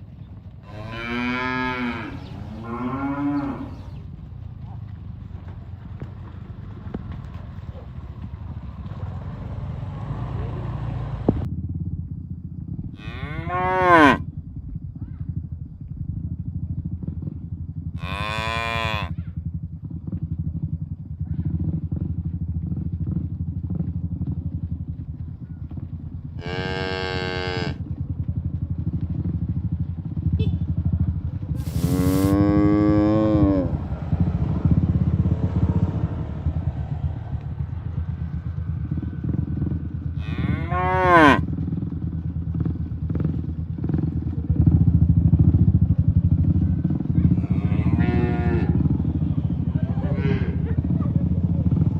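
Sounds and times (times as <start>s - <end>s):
cattle mooing: 0.6s - 3.9s, 13.0s - 14.2s, 18.0s - 19.1s, 26.4s - 27.8s, 31.6s - 34.0s, 40.1s - 41.5s, 47.2s - 48.9s
steady low rumble: 1.5s - 13.0s, 14.2s - 18.0s, 27.6s - 51.9s.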